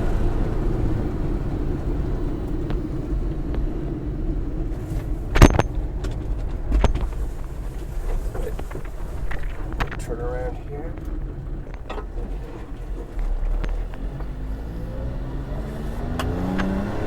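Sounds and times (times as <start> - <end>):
road rumble: 0.0 - 17.0
truck engine hum: 0.0 - 17.0.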